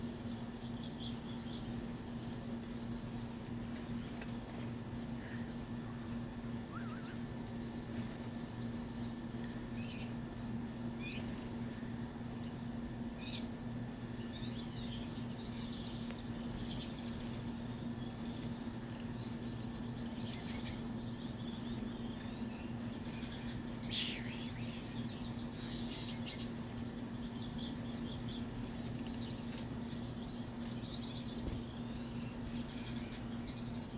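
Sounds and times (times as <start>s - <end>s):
finches chirping: 0.0s - 3.2s, 6.6s - 8.0s, 14.2s - 33.9s
steady low hum: 0.0s - 33.9s
warbling bird calls: 5.1s - 8.0s, 14.3s - 33.9s.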